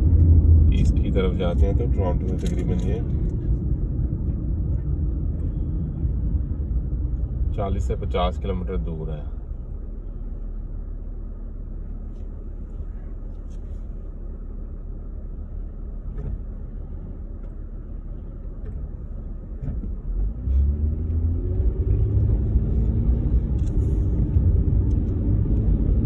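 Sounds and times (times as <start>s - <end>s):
car engine rumble: 0.0s - 26.0s
car accelerating: 18.2s - 26.0s.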